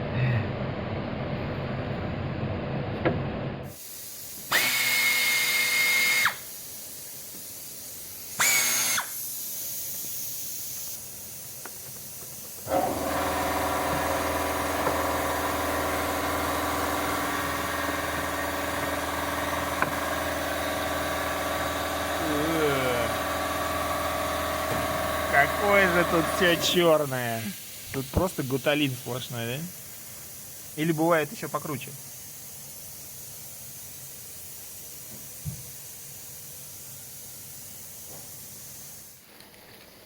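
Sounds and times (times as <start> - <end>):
cordless drill whining: 4.5 - 6.4, 8.4 - 9.2.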